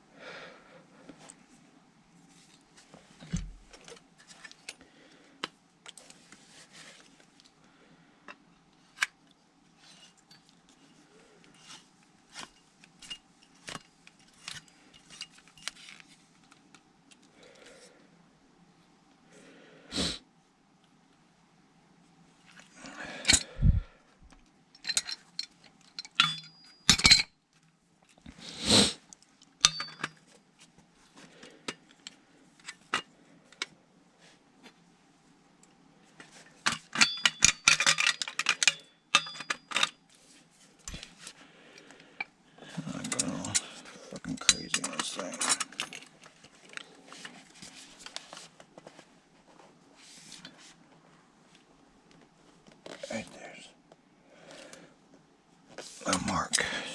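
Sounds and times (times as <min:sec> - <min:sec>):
metal tools clinking: 0:24.8 - 0:27.3, 0:29.6 - 0:30.2, 0:36.7 - 0:40.0, 0:42.9 - 0:46.2.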